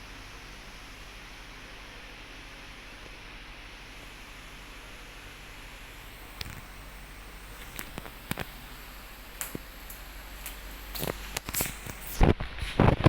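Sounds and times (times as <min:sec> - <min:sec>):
ceiling fan humming: 0:00.0 - 0:13.0.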